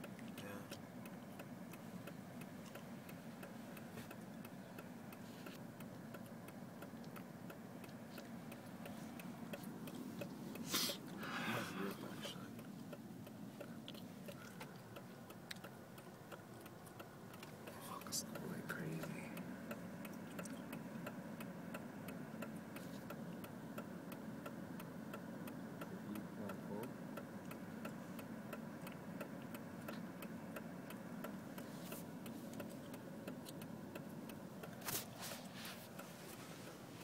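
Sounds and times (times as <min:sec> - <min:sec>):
hazard light flasher ticking: 0:00.8 - 0:10.7, 0:12.2 - 0:34.8
rustle: 0:34.6 - 0:37.0.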